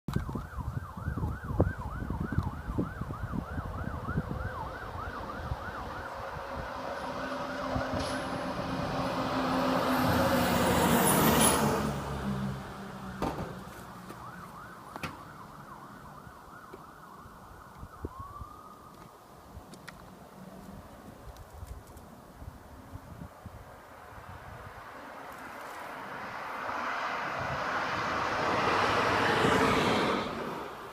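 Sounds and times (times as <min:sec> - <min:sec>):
siren yelping: 0:00.1 - 0:08.4, 0:14.1 - 0:19.1
short siren whoop: 0:00.6 - 0:06.4
heavy vehicle driving past: 0:06.1 - 0:13.2, 0:26.0 - 0:30.8.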